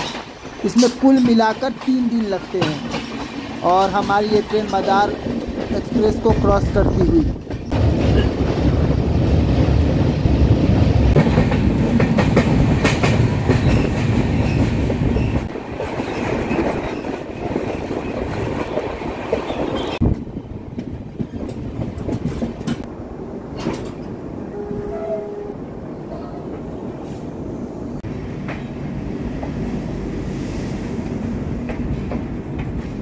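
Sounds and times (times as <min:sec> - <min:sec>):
train wheels clattering: 0:00.0 - 0:06.7, 0:10.7 - 0:22.9, 0:23.5 - 0:24.2.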